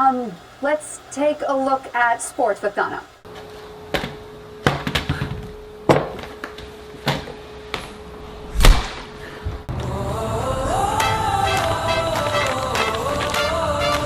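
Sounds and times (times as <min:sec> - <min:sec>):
faint steady hum: 0:00.0 - 0:14.0
music: 0:09.7 - 0:14.0.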